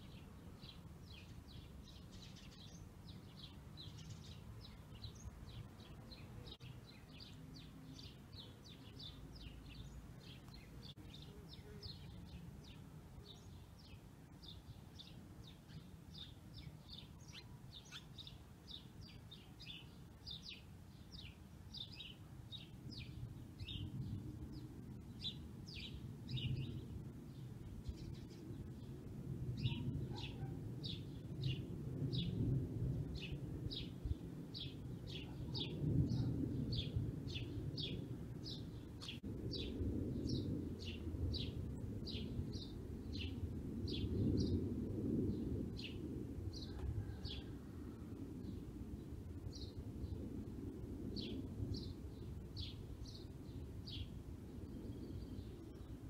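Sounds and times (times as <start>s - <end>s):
small bird chirping: 0.0s - 23.9s, 29.6s - 31.6s.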